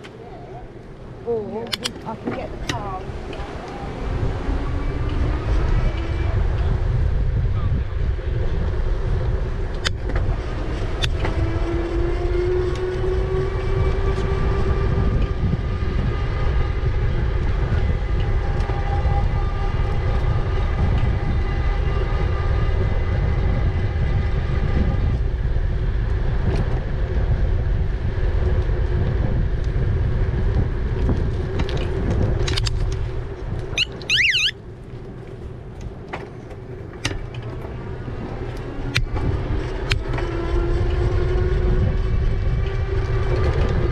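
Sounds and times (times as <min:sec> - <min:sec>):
wind buffeting microphone: 0:00.0 - 0:43.9
high warbling chirp: 0:33.8 - 0:34.6.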